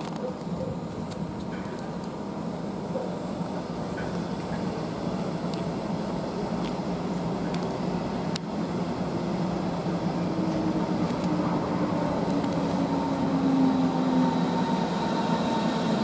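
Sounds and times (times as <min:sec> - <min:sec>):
electric train rolling rumble: 0:00.0 - 0:16.0
train motor whine falling in pitch: 0:09.6 - 0:16.0.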